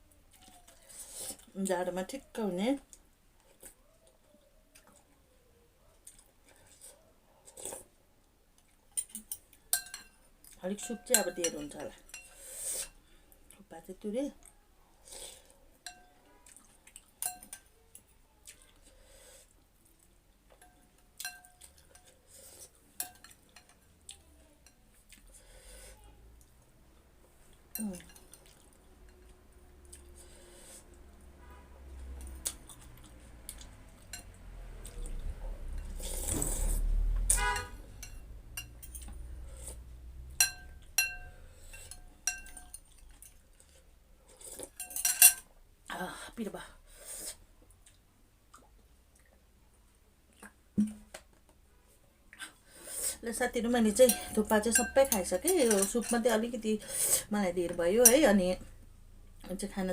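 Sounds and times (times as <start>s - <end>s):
spoon clinking against a bowl: 9.0s - 10.2s, 10.8s - 12.4s, 17.2s - 17.7s, 20.6s - 22.1s, 23.0s - 23.8s, 27.7s - 28.4s, 37.5s - 39.1s, 40.4s - 43.3s, 44.8s - 45.4s, 54.0s - 56.4s
person slurping soup: 35.9s - 37.0s, 46.9s - 47.4s.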